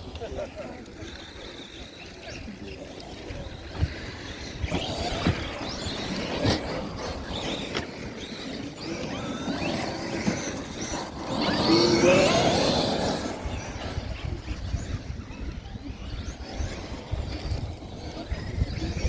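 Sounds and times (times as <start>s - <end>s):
electric motor whine: 4.5s - 19.0s.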